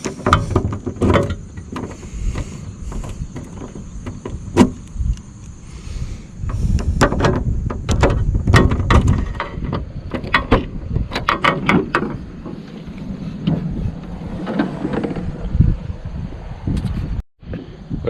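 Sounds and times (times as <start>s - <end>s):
objects clattering inside a car: 0.0s - 4.9s, 6.4s - 15.6s.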